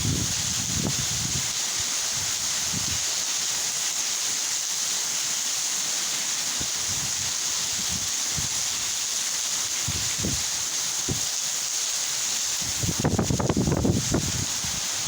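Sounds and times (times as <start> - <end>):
wind buffeting microphone: 0.0 - 1.5, 9.8 - 10.5, 12.6 - 15.0
torrential rain pouring: 0.0 - 15.0.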